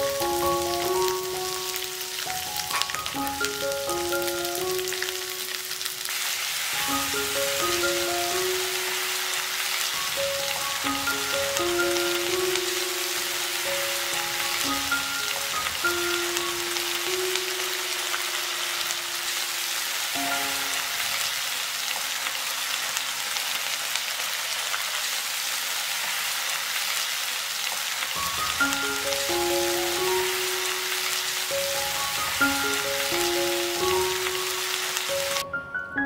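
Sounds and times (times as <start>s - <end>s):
soft background music: 0.0s - 6.0s, 6.7s - 21.5s, 28.2s - 36.0s
vegetables sizzling in oil: 0.0s - 35.4s.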